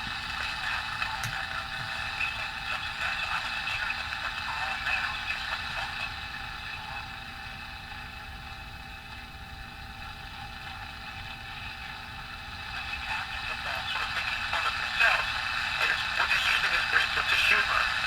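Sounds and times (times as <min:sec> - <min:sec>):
radio static hiss: 0:00.0 - 0:07.2, 0:10.0 - 0:18.0
voice through radio: 0:00.4 - 0:07.0, 0:12.7 - 0:18.0.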